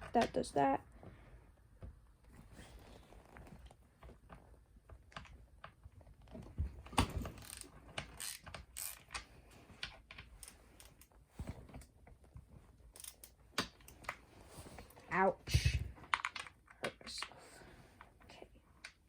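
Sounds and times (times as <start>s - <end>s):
socket ratchet clicking: 7.3s - 9.2s, 13.0s - 13.7s.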